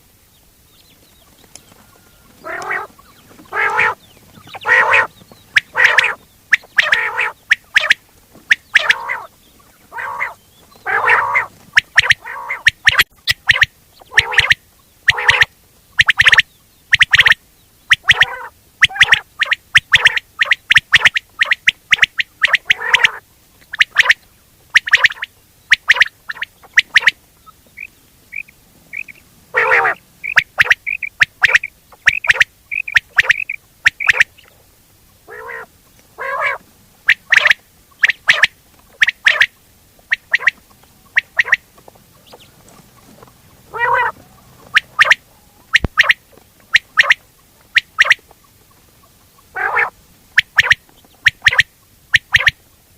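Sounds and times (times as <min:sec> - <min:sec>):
quail calling: 0:00.8 - 0:52.6.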